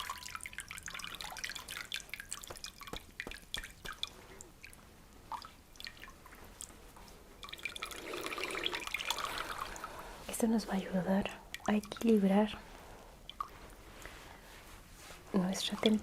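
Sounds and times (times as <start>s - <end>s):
water dripping into basin: 0.0s - 10.0s, 11.2s - 12.6s, 13.2s - 13.7s, 15.6s - 16.0s.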